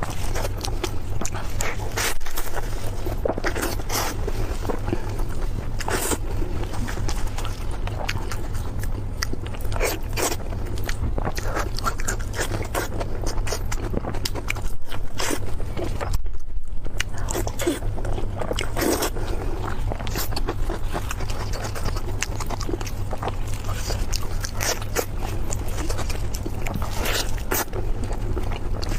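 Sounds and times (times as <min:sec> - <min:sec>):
person chewing food wetly: 0:00.0 - 0:28.9
steady low hum: 0:00.0 - 0:28.9.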